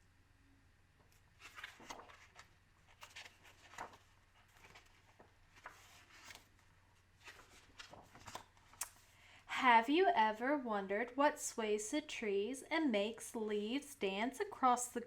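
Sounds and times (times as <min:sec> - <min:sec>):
paper pages rustling: 0:01.1 - 0:09.2.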